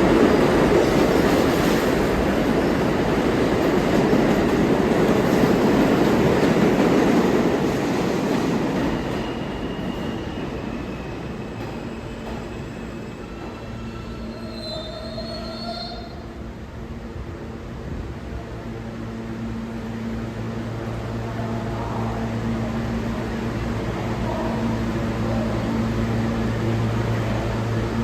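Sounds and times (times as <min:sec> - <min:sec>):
subway train running: 0:00.0 - 0:28.0
wheel squeals: 0:11.9 - 0:16.2.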